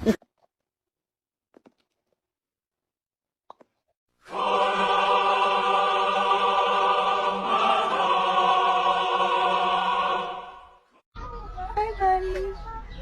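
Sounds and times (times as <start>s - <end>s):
choir singing a long chord: 4.2s - 10.9s.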